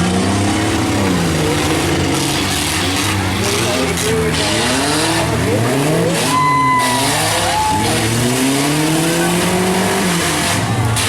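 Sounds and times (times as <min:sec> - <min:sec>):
engines revving: 0:00.0 - 0:11.0
high squeal: 0:06.1 - 0:08.7.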